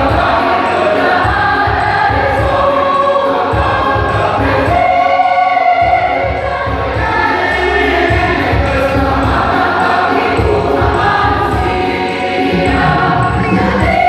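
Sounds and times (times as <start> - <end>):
church choir singing: 0.0 - 14.0.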